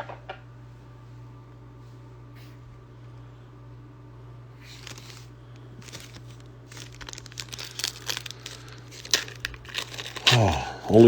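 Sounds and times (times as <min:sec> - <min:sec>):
foil wrapper crinkling: 0:04.6 - 0:11.0.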